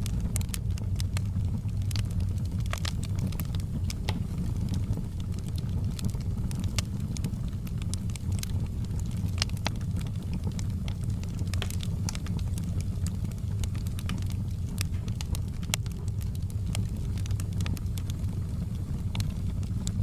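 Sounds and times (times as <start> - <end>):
fire crackling in fireplace: 0.0 - 20.0.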